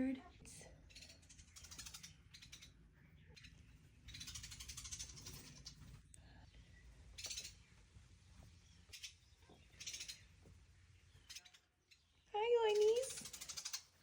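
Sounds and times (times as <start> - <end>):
nestling birds begging calls: 8.7 - 14.0.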